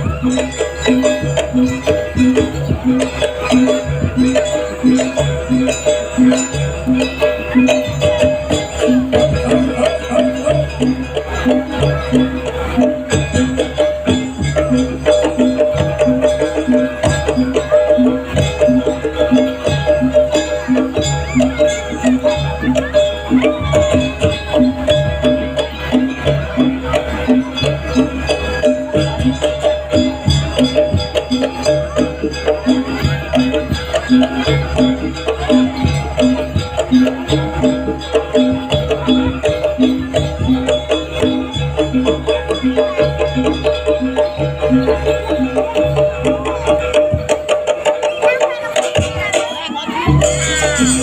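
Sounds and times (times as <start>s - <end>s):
drumming: 0.0s - 51.0s
gamelan music: 0.0s - 51.0s
jangling metal percussion: 0.0s - 51.0s.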